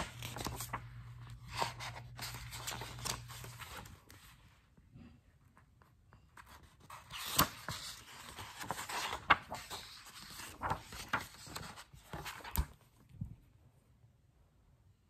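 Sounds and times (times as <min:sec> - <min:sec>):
book pages rustling: 0:00.0 - 0:04.6, 0:05.6 - 0:13.1.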